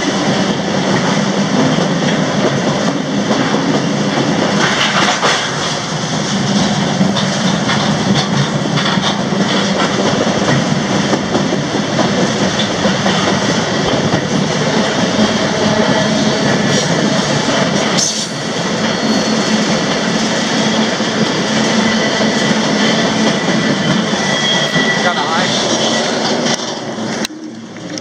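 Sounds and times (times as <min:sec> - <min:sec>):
train rumble: 0:00.0 - 0:28.0
wheels clattering: 0:01.0 - 0:25.0.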